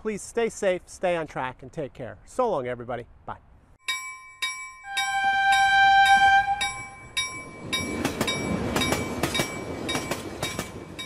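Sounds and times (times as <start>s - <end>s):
train horn: 4.9s - 7.0s
wheels clacking over rail joints: 6.1s - 11.0s.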